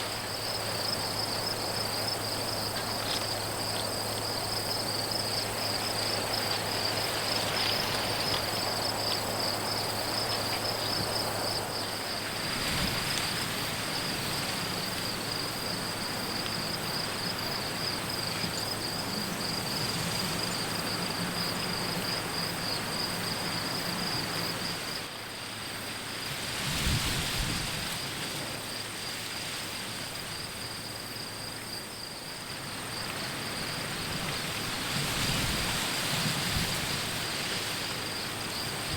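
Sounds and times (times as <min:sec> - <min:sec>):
insects trilling: 0:00.0 - 0:38.9
open air hiss: 0:00.0 - 0:38.9
wind rumble on microphone: 0:26.3 - 0:28.2, 0:34.0 - 0:38.9.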